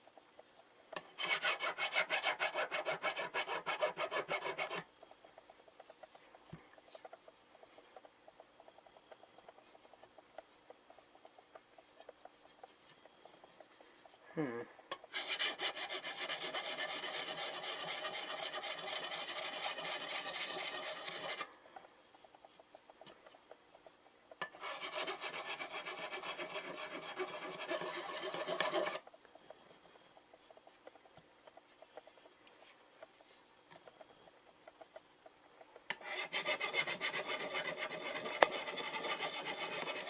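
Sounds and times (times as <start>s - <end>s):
hand file rasping on metal: 1.2s - 4.9s, 15.0s - 21.5s, 24.4s - 29.0s, 35.9s - 40.0s.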